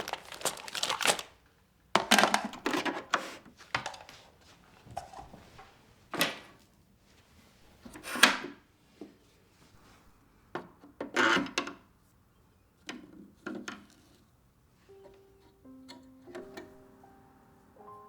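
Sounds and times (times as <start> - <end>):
objects knocking and scraping: 2.0 - 4.2.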